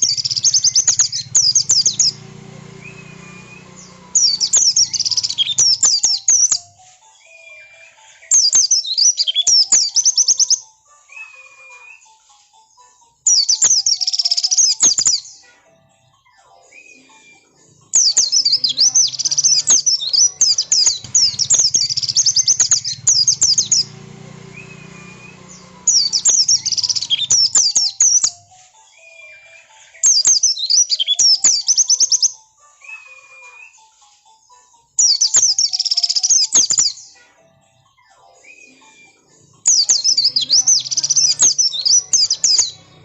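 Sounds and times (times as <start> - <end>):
white-eye chattering song: 0.0 - 6.8, 13.3 - 15.6, 16.9 - 33.8, 35.0 - 37.4, 38.3 - 43.0.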